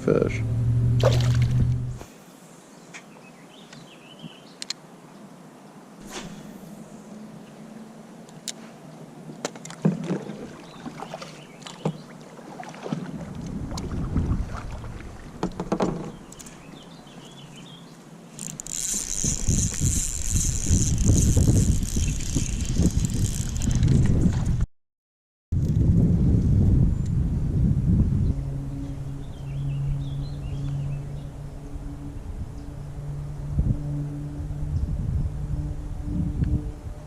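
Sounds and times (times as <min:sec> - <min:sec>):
wind buffeting microphone: 0:12.8 - 0:17.0, 0:18.4 - 0:24.6, 0:25.5 - 0:37.0.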